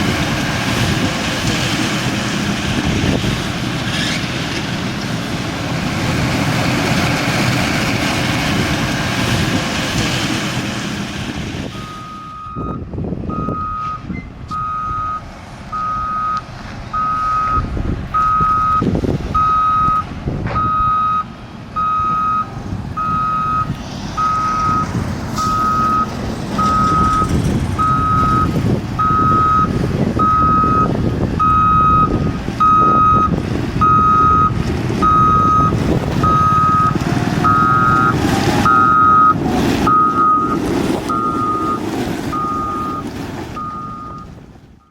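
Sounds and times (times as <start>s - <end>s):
diesel engine running: 0.0s - 44.9s
reversing alarm beeping: 11.7s - 20.0s, 20.6s - 44.9s.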